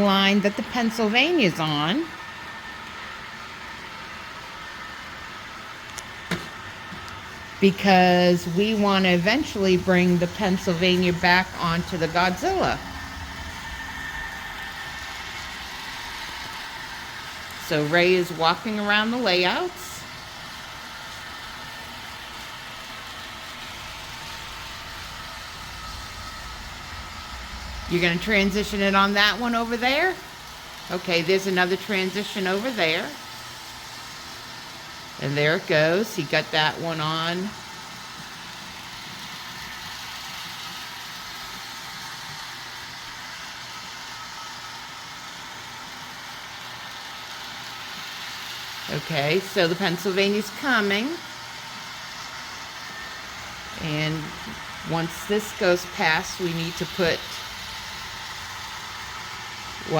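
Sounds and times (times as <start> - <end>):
model trains whirring on track: 0.0 - 59.9.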